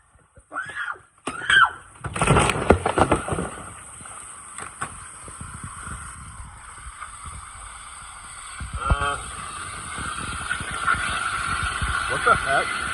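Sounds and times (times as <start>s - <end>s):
water spraying from leaking pipe: 3.7s - 12.9s.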